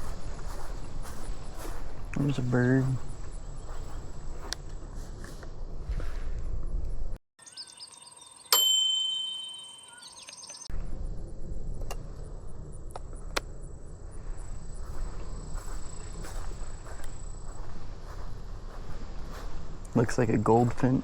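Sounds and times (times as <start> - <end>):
faint insect trill: 0.0 - 5.8, 6.6 - 8.7, 9.3 - 20.7
short bird chirps: 7.4 - 8.6, 9.5 - 10.7
bell-like ding: 8.5 - 10.7.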